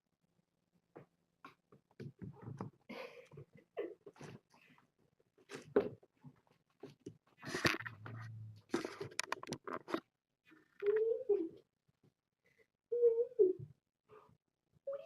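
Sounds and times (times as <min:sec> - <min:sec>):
kittens crunching and scratching: 0:05.4 - 0:10.8.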